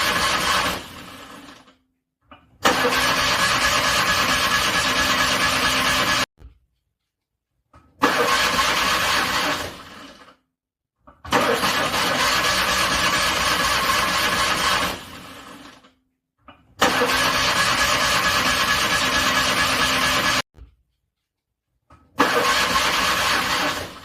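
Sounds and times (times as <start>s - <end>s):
car starter cranking engine: 0.0s - 1.7s, 2.6s - 6.3s, 8.0s - 10.4s, 11.3s - 15.8s, 16.8s - 20.4s, 22.2s - 24.0s.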